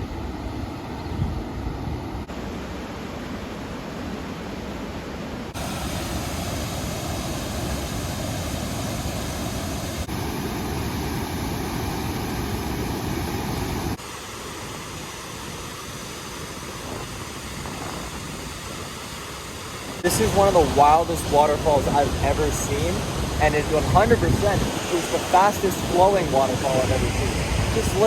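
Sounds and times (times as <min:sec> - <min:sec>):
waterfall rushing: 0:05.5 - 0:14.7, 0:19.8 - 0:28.0.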